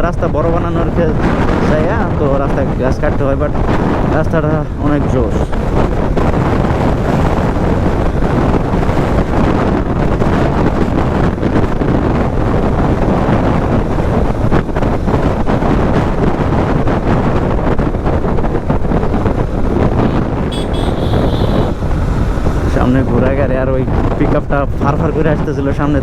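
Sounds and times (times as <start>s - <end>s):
road noise: 0.0s - 26.0s
wind buffeting microphone: 0.0s - 26.0s
motorcycle engine: 5.5s - 24.2s.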